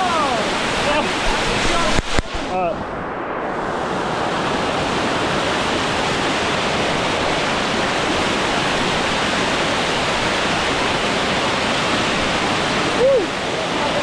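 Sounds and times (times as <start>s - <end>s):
waterfall rushing over rock: 0.0s - 2.8s, 3.6s - 14.0s.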